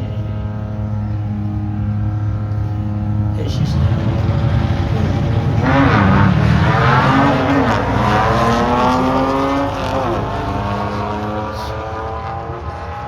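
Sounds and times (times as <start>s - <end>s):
drag racing cars accelerating: 0.0s - 13.0s.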